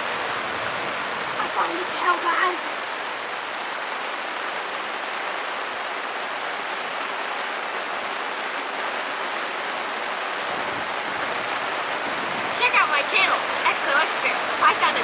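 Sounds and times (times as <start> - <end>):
rain pattering on a boat: 0.0 - 15.0.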